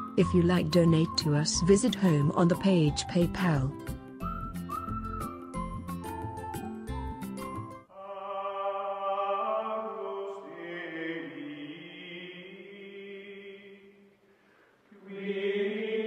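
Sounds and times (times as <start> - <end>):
chant-like vocal drone: 7.9 - 14.0, 14.9 - 16.0.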